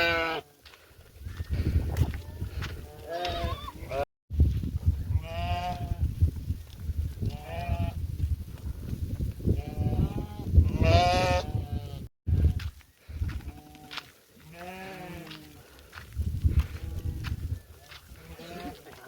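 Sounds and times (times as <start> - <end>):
sheep bleating: 0.0 - 0.5, 2.8 - 4.0, 9.6 - 12.1, 13.5 - 15.5, 18.2 - 19.0.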